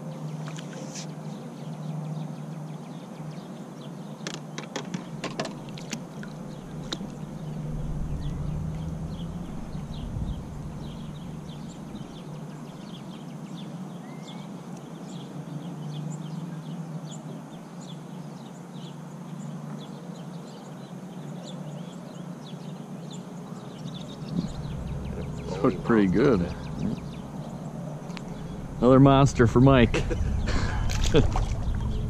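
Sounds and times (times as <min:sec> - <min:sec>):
small birds chirping: 0:00.0 - 0:32.0
steady low hum: 0:05.6 - 0:13.9, 0:23.4 - 0:32.0.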